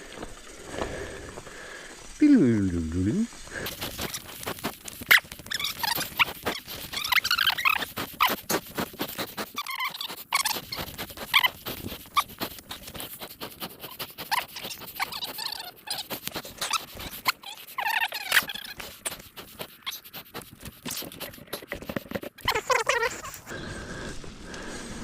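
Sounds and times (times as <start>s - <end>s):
disc brakes squealing: 5.0s - 13.0s, 13.8s - 19.0s.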